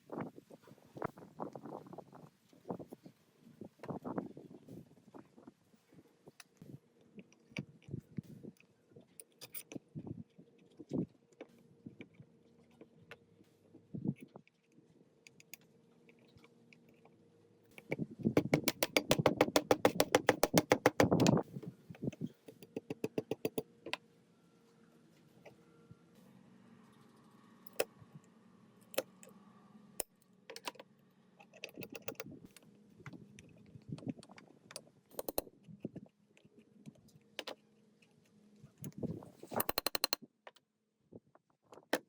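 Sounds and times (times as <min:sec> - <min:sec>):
metal parts clicking and tapping: 0:09.2 - 0:09.8, 0:17.7 - 0:24.0, 0:27.7 - 0:27.9, 0:30.0 - 0:30.8, 0:31.4 - 0:36.6, 0:37.4 - 0:37.6, 0:38.8 - 0:40.6.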